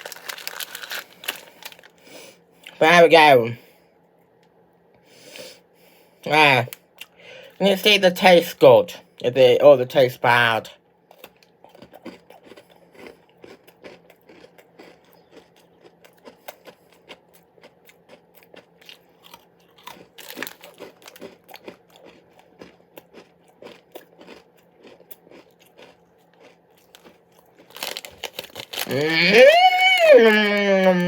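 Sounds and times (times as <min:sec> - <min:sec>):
person chewing crunchy biscuits: 0:00.0 - 0:02.8, 0:11.0 - 0:31.0.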